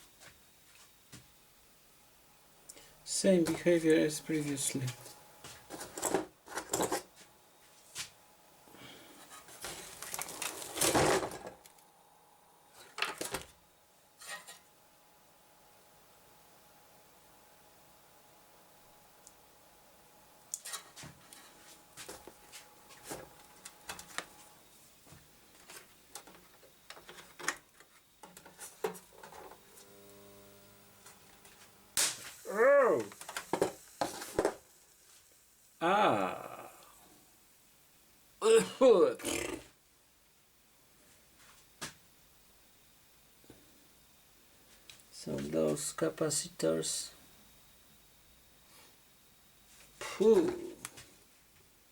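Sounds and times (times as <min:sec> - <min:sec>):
low electrical buzz: 0:00.0 - 0:51.9
scrape: 0:14.2 - 0:14.6.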